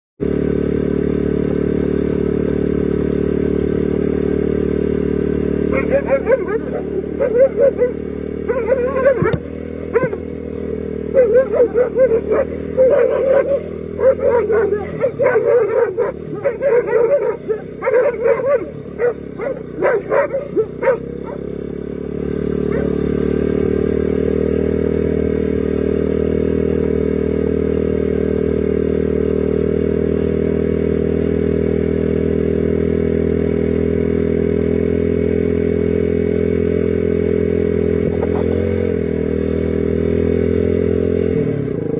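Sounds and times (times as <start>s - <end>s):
engine hum: 0.2s - 41.9s
dog barking: 5.7s - 10.3s, 11.1s - 21.6s, 22.7s - 23.0s.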